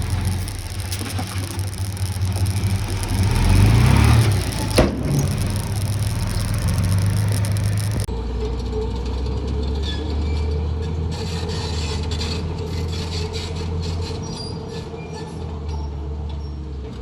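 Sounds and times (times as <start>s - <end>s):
diesel engine running: 0.0s - 8.1s.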